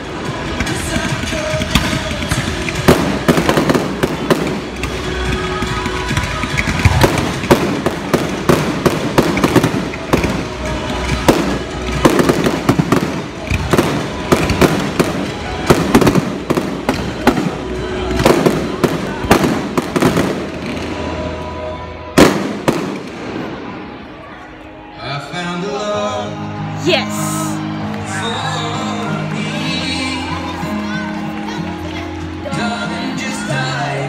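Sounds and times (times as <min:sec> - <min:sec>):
fireworks bursts and crackling: 0:00.0 - 0:24.0
music playing: 0:00.0 - 0:34.0.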